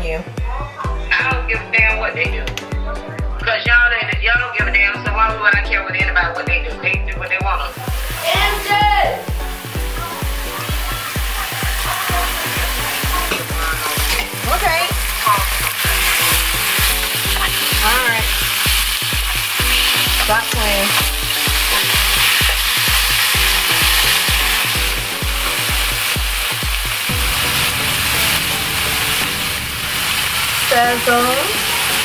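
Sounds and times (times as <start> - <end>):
music with heavy beat: 0.0 - 32.0
chicken sizzling in a skillet: 7.7 - 32.0
food being stirred: 10.1 - 27.5.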